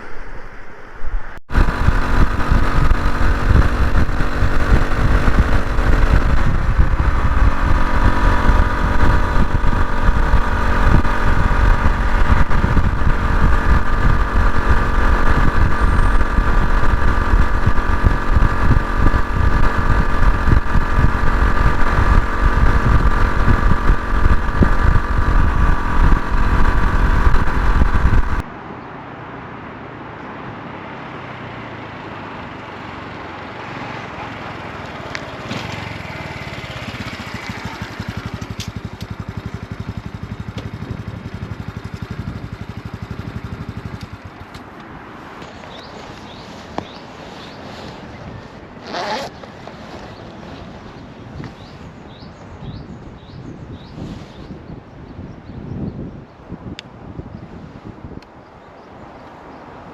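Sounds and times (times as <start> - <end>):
wind buffeting microphone: 0.0 - 28.5, 49.5 - 58.5
motorcycle engine running: 1.3 - 28.5, 34.1 - 54.0.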